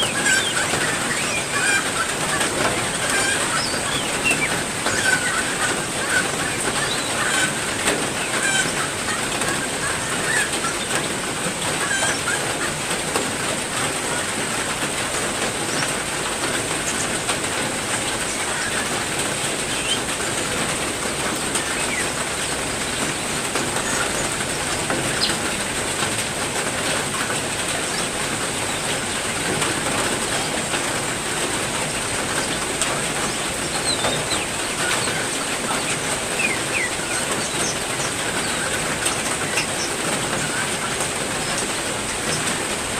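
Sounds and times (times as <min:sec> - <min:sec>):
heavy rain falling: 0:00.0 - 0:42.9
bird chirps: 0:03.1 - 0:07.2.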